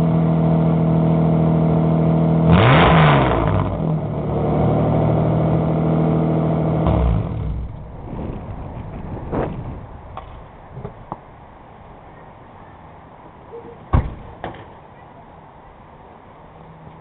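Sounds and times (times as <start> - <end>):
exhaust revving: 0.0 - 10.8.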